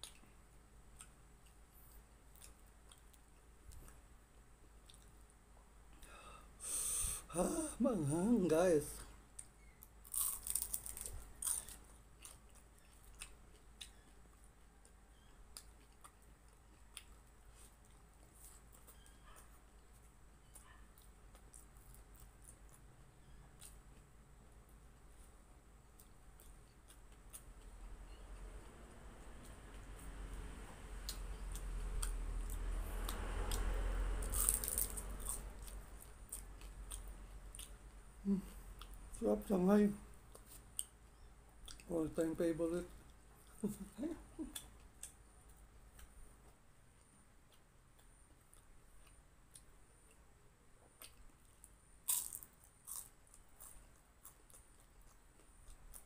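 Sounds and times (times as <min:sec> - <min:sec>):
crunchy chewing: 0:00.0 - 0:05.4, 0:09.4 - 0:39.1, 0:40.2 - 0:41.9, 0:43.0 - 0:56.0
soft chewing with mouth clicks: 0:00.0 - 0:06.2, 0:09.0 - 0:39.2, 0:40.0 - 0:42.0, 0:42.9 - 0:56.0
person humming: 0:06.7 - 0:08.5, 0:38.2 - 0:38.6, 0:43.7 - 0:44.5.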